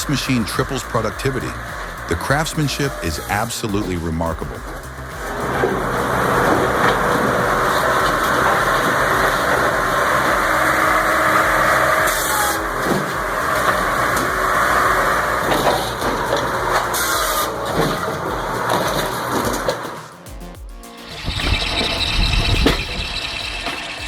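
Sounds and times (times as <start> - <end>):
firewood processor engine running: 5.2 - 19.7.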